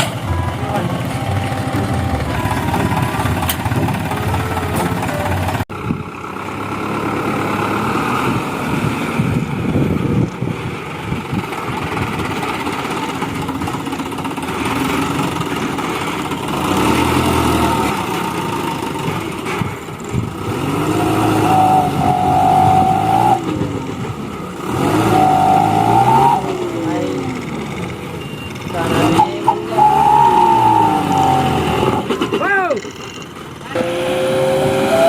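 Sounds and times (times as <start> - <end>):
steady pitched tone: 0.0 - 5.6, 21.3 - 32.8
vehicle engine running: 0.0 - 35.0.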